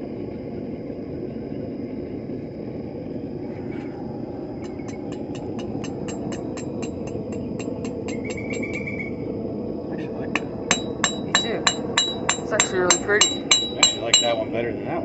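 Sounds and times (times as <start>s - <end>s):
steady rushing noise: 0.0s - 15.0s
hammer striking steel on anvil: 5.1s - 8.8s, 10.4s - 14.5s.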